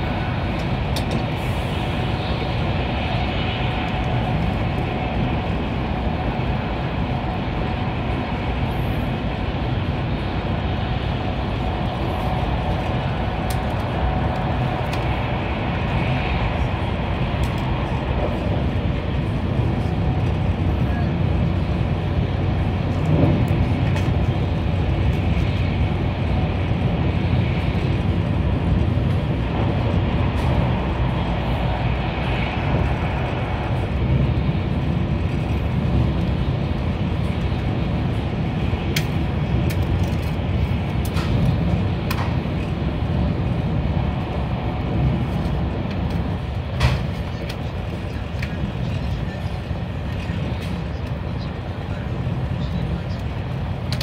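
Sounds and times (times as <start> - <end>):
train running noise from inside: 0.0 - 54.0.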